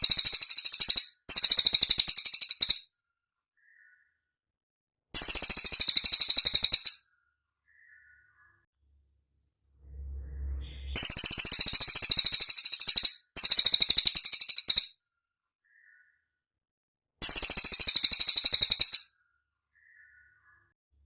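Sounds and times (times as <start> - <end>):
faint low hum: 9.6 - 11.5.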